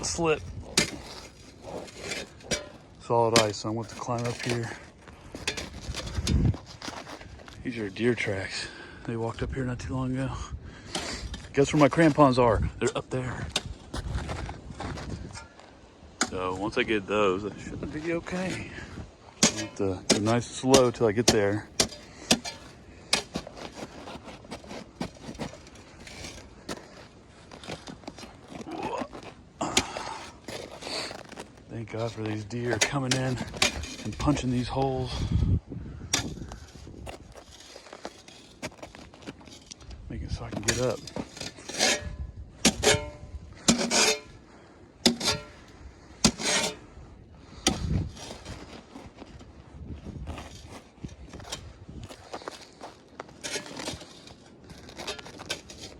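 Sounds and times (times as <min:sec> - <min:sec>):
boots crunching in icy snow: 0:20.3 - 0:33.6, 0:50.3 - 0:55.9.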